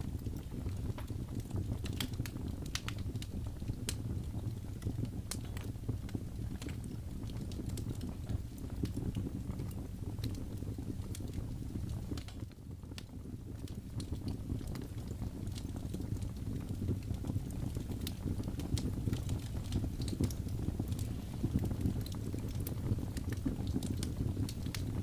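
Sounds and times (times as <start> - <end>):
fire crackling and popping: 0.0 - 25.0
flames rushing: 13.6 - 25.0.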